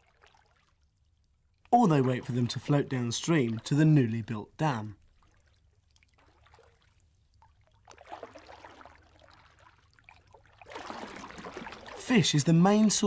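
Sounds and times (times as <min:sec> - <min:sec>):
stream water trickling: 0:00.0 - 0:13.0.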